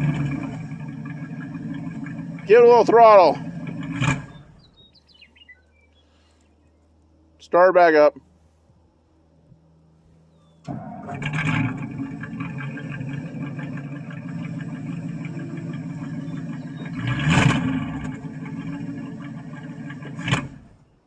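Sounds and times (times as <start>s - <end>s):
engine revving: 0.0s - 4.8s, 10.6s - 20.9s
car engine starting and running: 0.0s - 5.9s, 9.6s - 21.0s.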